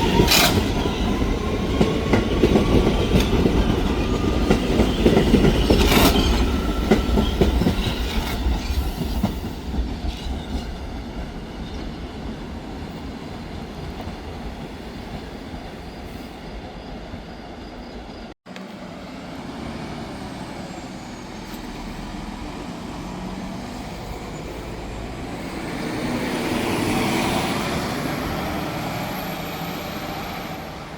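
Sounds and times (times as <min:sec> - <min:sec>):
train running on rails: 0:00.0 - 0:30.9
bus passing: 0:18.5 - 0:30.9.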